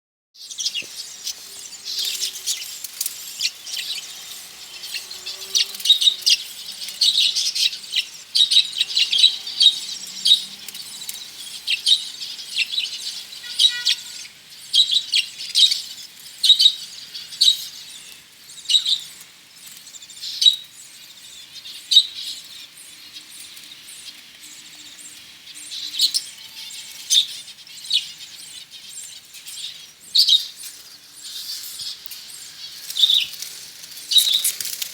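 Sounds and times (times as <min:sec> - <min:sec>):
budgerigars chattering and chirping: 0:00.4 - 0:19.2, 0:34.0 - 0:34.8.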